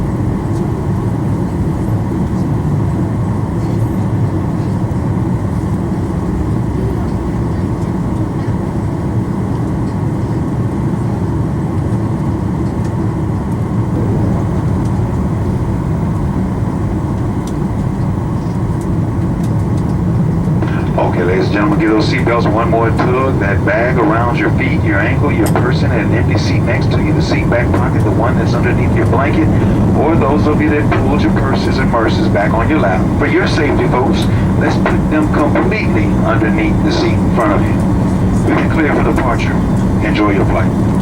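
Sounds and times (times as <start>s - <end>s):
airliner cabin rumble: 0.0s - 41.0s.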